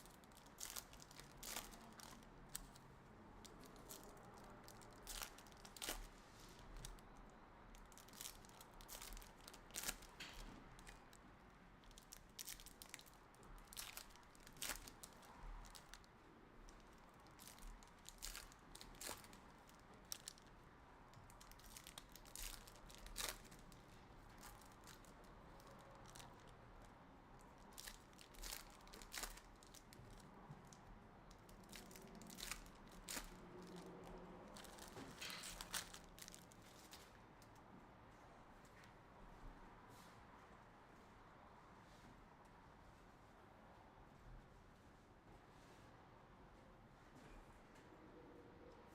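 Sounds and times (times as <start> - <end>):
card pack wrappers tearing: 0.0 - 2.8, 21.4 - 23.8, 31.6 - 36.6
small clicks and rustles: 0.0 - 37.8.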